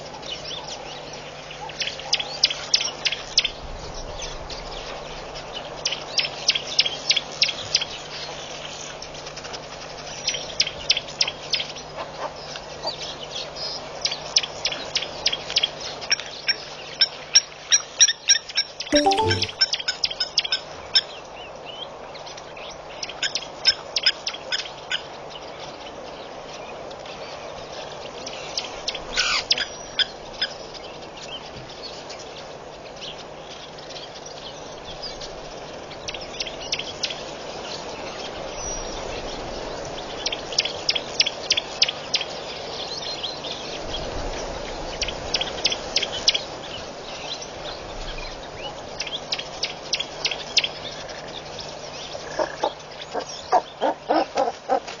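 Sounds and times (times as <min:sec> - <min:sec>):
birds clicking calls: 0:49.0 - 0:55.0.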